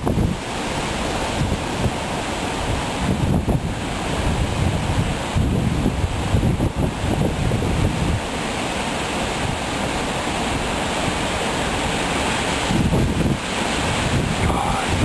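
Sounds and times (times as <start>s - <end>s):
wind buffeting microphone: 0.0s - 8.7s, 9.3s - 15.0s
wind blowing through trees: 0.0s - 15.0s.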